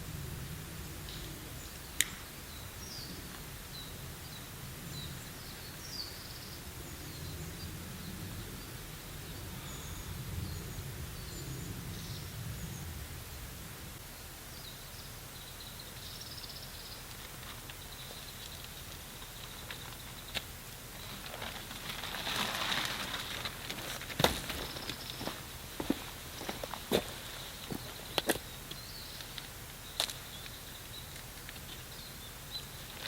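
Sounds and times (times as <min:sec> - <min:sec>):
wind rumble: 0:00.0 - 0:14.1
small birds chirping: 0:00.8 - 0:33.0.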